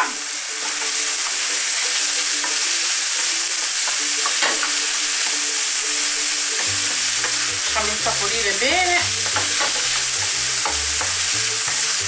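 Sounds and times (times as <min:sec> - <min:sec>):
chicken sizzling in frying pan: 0:00.0 - 0:12.0.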